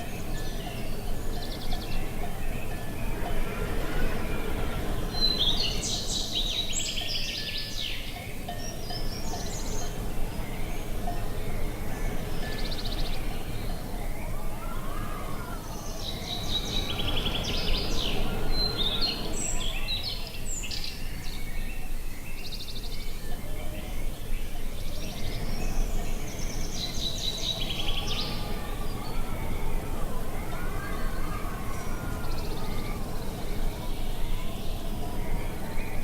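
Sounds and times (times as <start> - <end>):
songbirds chirping and trilling: 0.0 - 36.0
wind rumbling: 8.4 - 20.6.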